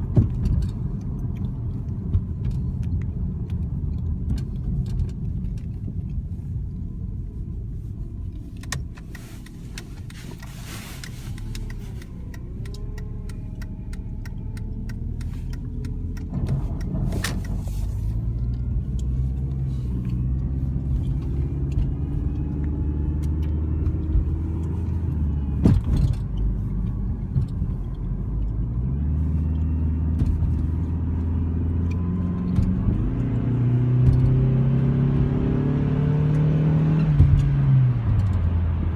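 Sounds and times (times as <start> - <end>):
car engine running: 0.0 - 38.9
sharp clicks: 8.4 - 25.0.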